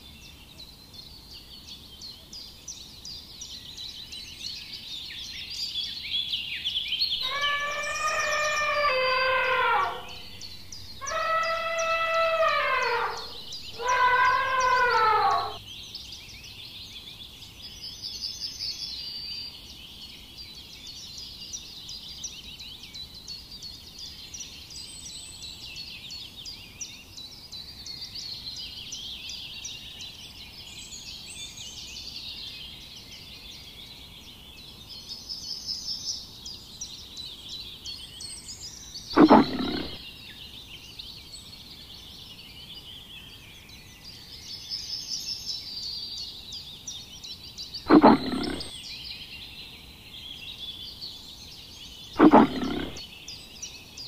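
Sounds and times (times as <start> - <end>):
high chirping birds: 7.0 - 16.7, 36.5 - 54.0
lion grunting calls: 7.2 - 15.6, 39.2 - 40.0, 47.9 - 48.8, 52.2 - 53.0.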